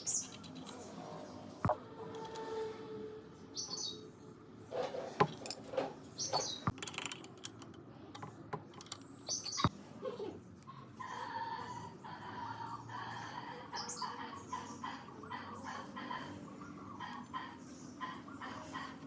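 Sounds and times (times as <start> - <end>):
sharp clicks and knocks: 5.2 - 9.7
birds chirping: 6.2 - 6.8, 9.2 - 9.7.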